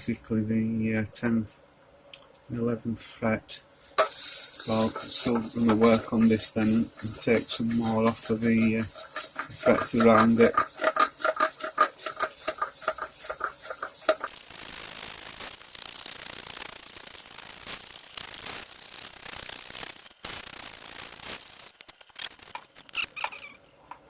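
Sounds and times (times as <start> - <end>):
abrasive paper sanding metal frets: 3.8 - 16.7.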